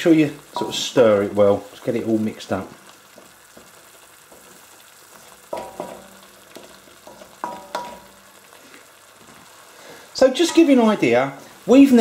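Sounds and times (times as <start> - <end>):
paste sizzling in a wok: 0.0 - 12.0
wooden spoon scraping wok: 0.2 - 12.0
spoon knocking on wok: 5.4 - 8.3.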